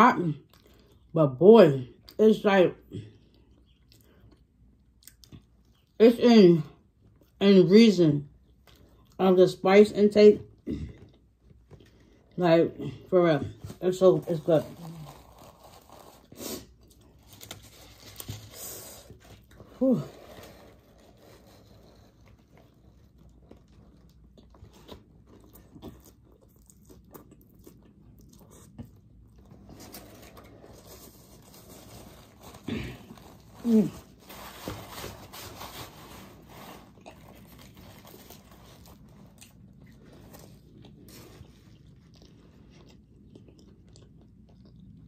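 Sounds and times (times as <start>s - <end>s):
biting and chewing food: 14.3s - 35.2s, 36.8s - 45.0s.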